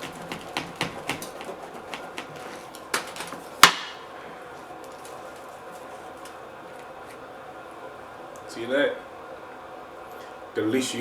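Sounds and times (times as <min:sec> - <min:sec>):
knife knocking metal pan: 0:00.0 - 0:02.4
knife tapping: 0:00.0 - 0:03.9.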